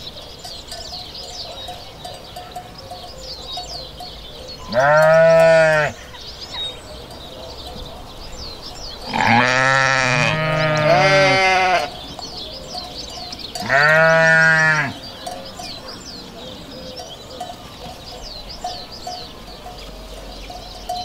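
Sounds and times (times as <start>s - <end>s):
sheep bleating: 4.7s - 6.0s, 9.1s - 12.0s, 13.6s - 15.0s.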